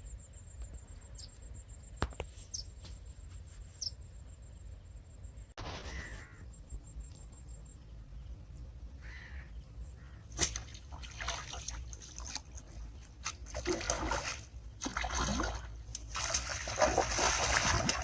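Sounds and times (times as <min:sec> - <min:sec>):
crow cawing: 0:05.8 - 0:06.4, 0:09.0 - 0:10.2
water splashing: 0:10.4 - 0:18.0.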